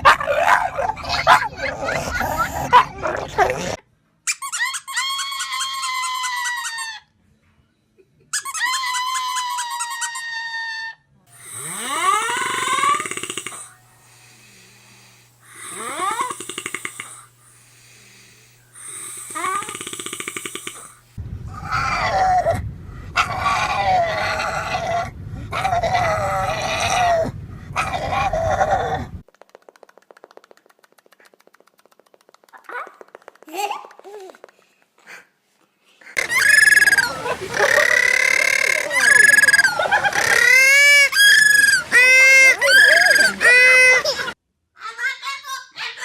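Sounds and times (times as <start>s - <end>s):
wavering animal-like cries: 4.4s - 7.1s, 8.4s - 13.7s, 23.2s - 29.2s, 36.2s - 44.4s
high-pitched fluttering squeals: 36.2s - 44.3s.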